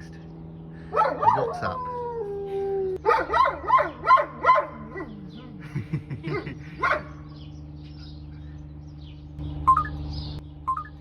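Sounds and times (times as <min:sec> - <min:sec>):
wolf yipping barks: 0:00.9 - 0:01.8, 0:03.0 - 0:05.3, 0:06.3 - 0:07.2.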